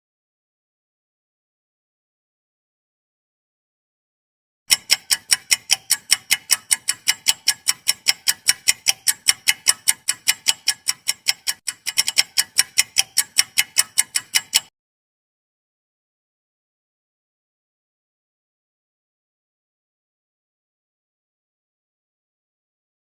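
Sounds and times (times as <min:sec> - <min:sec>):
clock ticking: 0:04.7 - 0:14.7.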